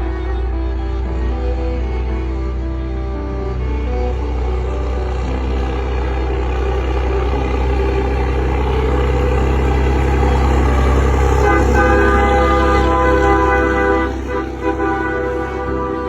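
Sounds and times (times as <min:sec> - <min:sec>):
truck diesel engine running: 0:00.0 - 0:16.0.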